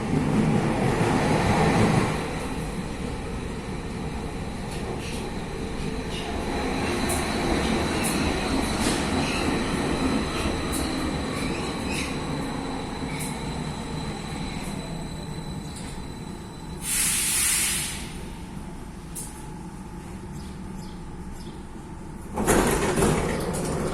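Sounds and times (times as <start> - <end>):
electric train rumbling: 0.0 - 23.9
loud air hiss: 16.8 - 18.4
rail clicks: 22.3 - 23.9.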